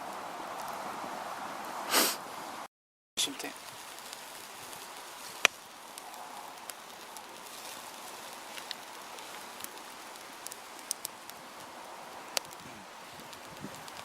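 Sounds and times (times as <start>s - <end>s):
fire crackles and pops: 0.0s - 14.0s
sausage sizzling over fire: 3.2s - 14.0s.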